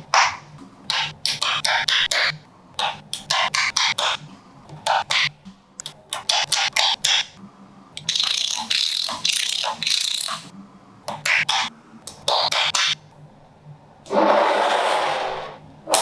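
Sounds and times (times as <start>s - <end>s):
magnetic balls clicking together: 8.0s - 10.5s.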